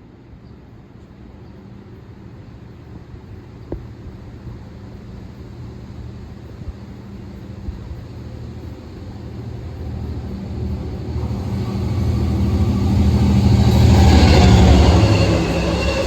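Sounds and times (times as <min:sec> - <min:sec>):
train rumbling: 0:00.6 - 0:16.0
train wheel squeal: 0:09.0 - 0:16.0.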